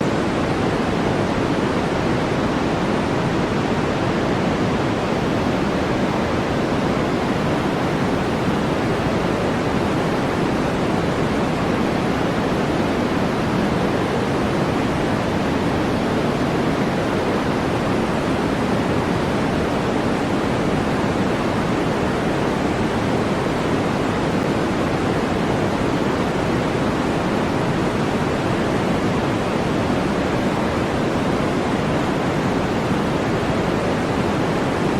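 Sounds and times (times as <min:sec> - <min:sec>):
synthetic white noise hiss: 0:00.0 - 0:34.9.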